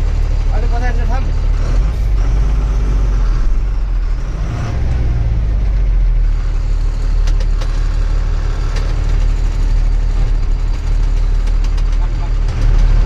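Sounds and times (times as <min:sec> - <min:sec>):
truck engine rumbling: 0:00.0 - 0:13.0
sharp knocks and rattles: 0:07.1 - 0:13.0.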